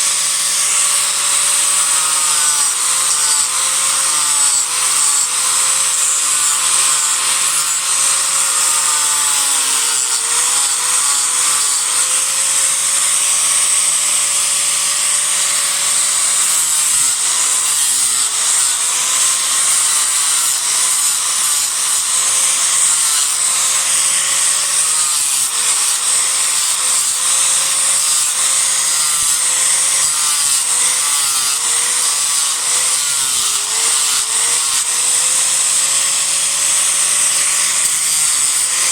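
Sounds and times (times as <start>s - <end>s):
disc grinder grinding wood: 0.0s - 38.9s.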